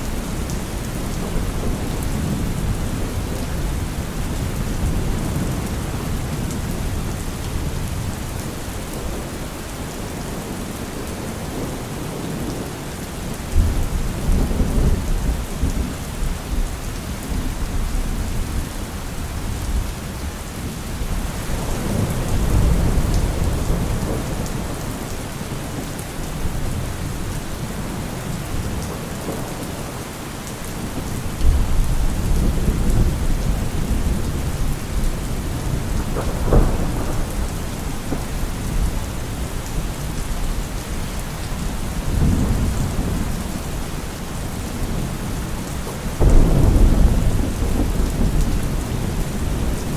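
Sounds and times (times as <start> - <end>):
heavy rain falling: 0.0 - 49.9
thunder rumbling: 21.0 - 30.0, 30.7 - 49.9
sharp thunderclap: 35.4 - 38.9, 46.2 - 49.9.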